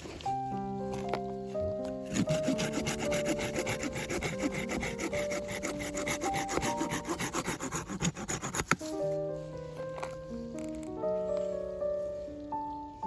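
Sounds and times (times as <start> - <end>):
hand saw cutting wood: 2.0 - 9.0.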